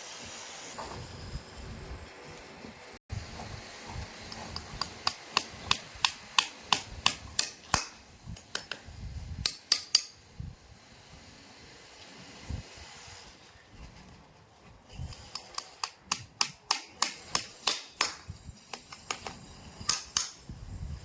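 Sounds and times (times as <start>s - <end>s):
hammer striking metal: 4.8s - 8.0s, 9.5s - 10.2s.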